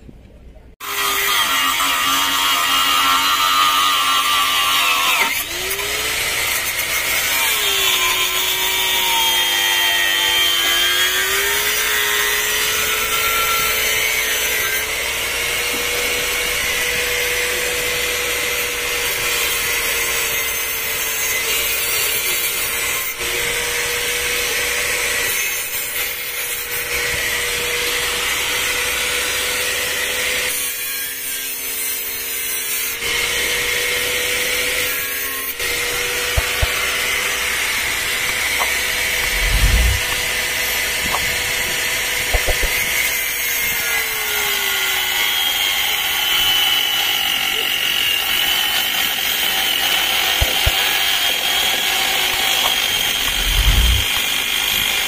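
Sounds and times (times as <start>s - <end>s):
loud rushing noise: 39.1s - 40.4s, 53.2s - 54.1s.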